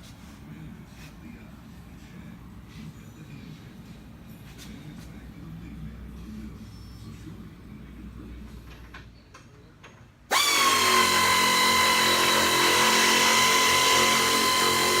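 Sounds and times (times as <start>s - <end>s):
power tool motor whining: 10.3s - 15.0s.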